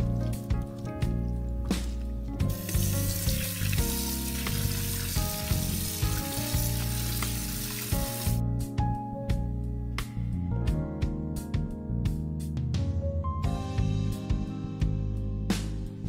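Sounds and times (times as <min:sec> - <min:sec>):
background music: 0:00.0 - 0:16.0
hands rinsing vegetables in water: 0:00.2 - 0:08.4.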